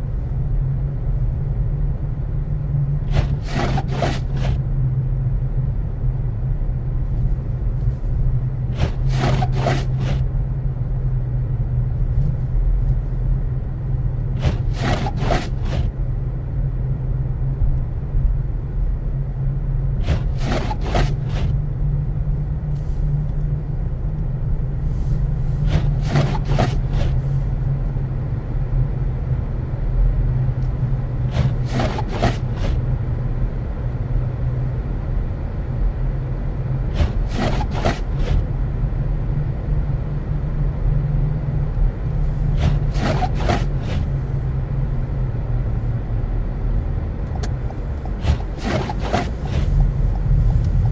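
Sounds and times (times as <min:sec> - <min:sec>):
engine and road rumble: 0:00.0 - 0:50.9
windshield wipers rubbing on glass: 0:03.1 - 0:04.6, 0:08.7 - 0:10.3, 0:14.4 - 0:15.9, 0:20.0 - 0:21.6, 0:25.0 - 0:27.4, 0:31.2 - 0:32.8, 0:36.9 - 0:38.5, 0:42.2 - 0:44.3, 0:47.4 - 0:50.9.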